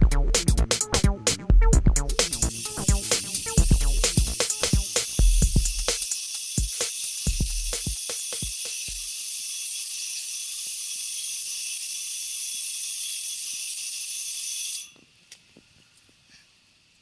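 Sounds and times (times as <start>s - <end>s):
spray nozzle hissing: 2.1s - 11.1s.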